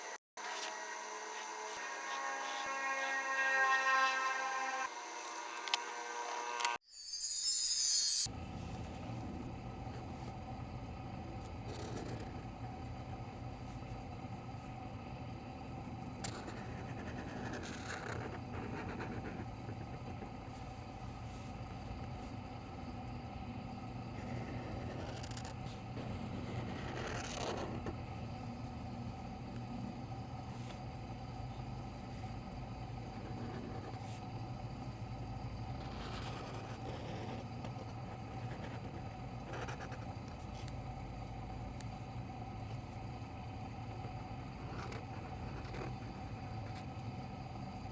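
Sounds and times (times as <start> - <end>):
low background hum: 8.2 - 47.9
pen scratching on paper: 16.2 - 20.3, 24.2 - 28.0, 35.8 - 40.1, 44.6 - 46.0.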